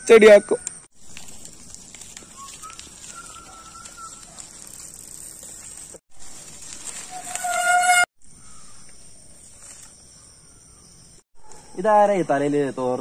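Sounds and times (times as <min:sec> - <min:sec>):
faint whistled bird notes: 0:02.2 - 0:04.4.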